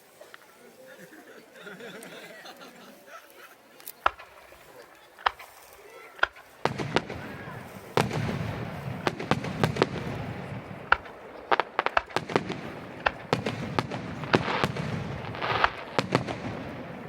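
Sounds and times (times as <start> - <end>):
fireworks crackling: 0.0 - 17.0
fireworks shells bursting: 3.8 - 17.0.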